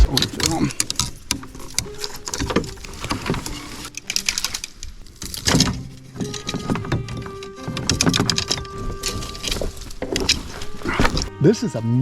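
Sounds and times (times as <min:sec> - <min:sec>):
kayak handling knocks: 0:04.3 - 0:11.3.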